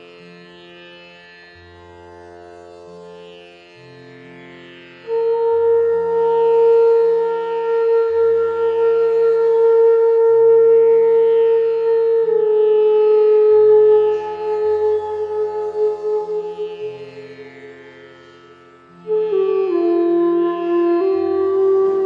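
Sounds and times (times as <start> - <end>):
bamboo flute long note: 5.0 - 17.9, 19.0 - 22.0.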